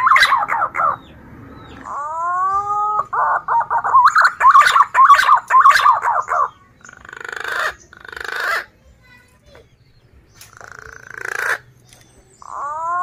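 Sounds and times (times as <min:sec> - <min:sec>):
pigeon whistling song: 0:00.0 - 0:08.7
raspy pulsing bird call: 0:00.0 - 0:08.8, 0:10.4 - 0:11.8, 0:12.4 - 0:13.0.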